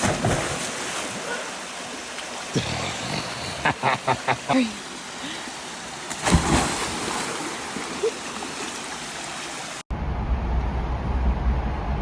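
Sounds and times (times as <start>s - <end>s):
water splash: 0.0s - 2.6s, 6.1s - 9.8s
creek water rushing: 0.0s - 9.8s
low steady rumble: 9.9s - 12.0s.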